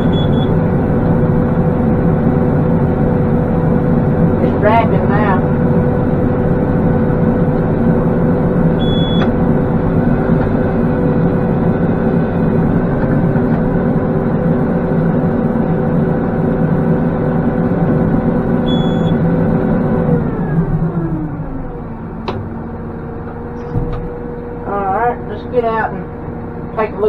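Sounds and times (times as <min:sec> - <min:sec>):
short electronic beeps: 0:00.0 - 0:00.5, 0:08.8 - 0:09.3, 0:18.7 - 0:19.2
tractor diesel engine running: 0:00.0 - 0:27.0.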